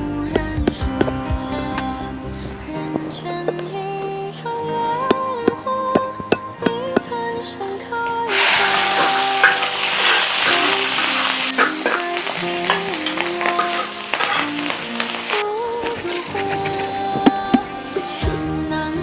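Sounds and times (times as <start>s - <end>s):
background music: 0.0s - 19.0s
food sizzling and frying: 8.3s - 18.3s.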